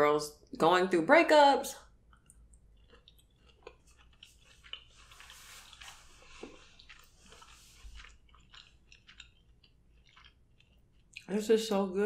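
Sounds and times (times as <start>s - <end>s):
wet squishy chewing: 1.9s - 11.4s.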